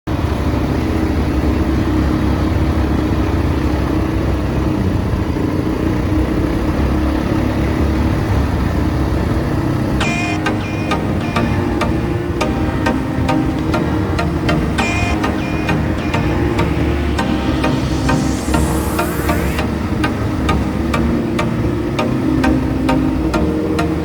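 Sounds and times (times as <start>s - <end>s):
pitched music notes: 10.0s - 24.0s.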